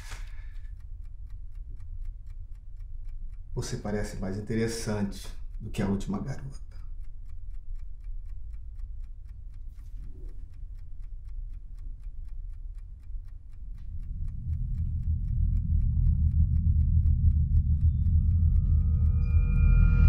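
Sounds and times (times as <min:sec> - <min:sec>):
clock ticking: 0:00.0 - 0:20.0
low rumbling drone: 0:12.6 - 0:20.0.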